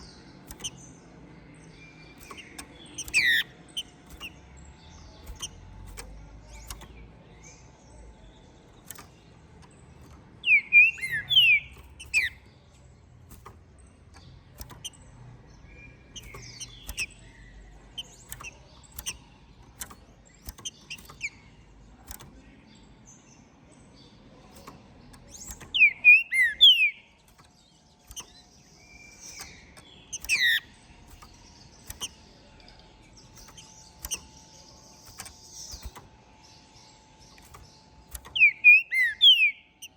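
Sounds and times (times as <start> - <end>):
sharp clicks: 0.0 - 39.9
bird singing whistled phrases: 10.4 - 12.4, 25.7 - 27.1, 38.3 - 39.9.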